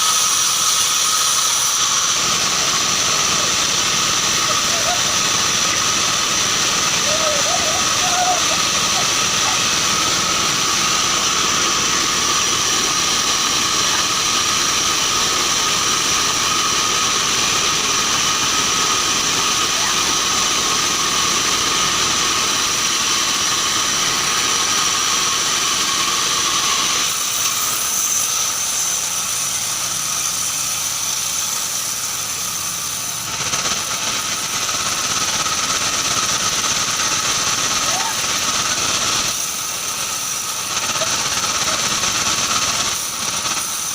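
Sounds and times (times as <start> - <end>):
band saw high whine: 0.0 - 34.6
saw cutting wood: 0.0 - 43.9.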